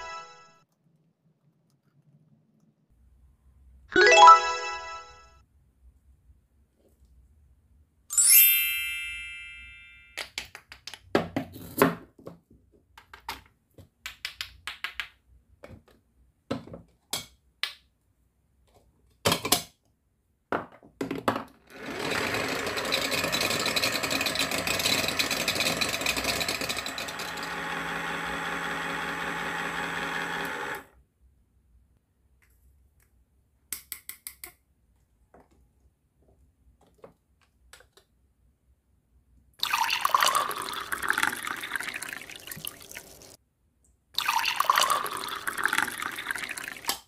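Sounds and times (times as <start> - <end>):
bright chime: 4.0 - 5.2, 8.1 - 10.2
small battery motor running: 21.8 - 30.9.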